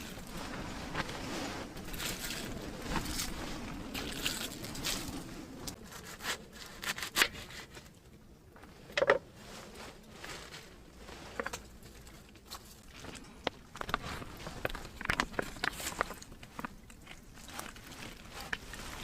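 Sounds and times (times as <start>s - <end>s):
handling scrapes: 0.0s - 8.0s.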